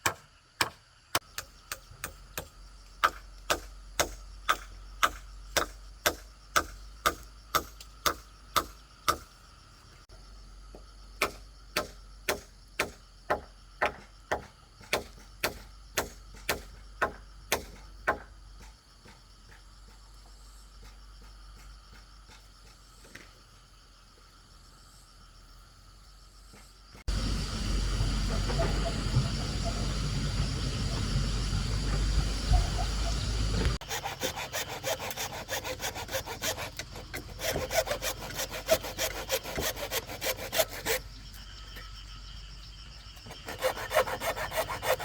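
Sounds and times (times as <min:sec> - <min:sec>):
hand tool striking bamboo: 0:00.0 - 0:09.3, 0:33.8 - 0:41.0.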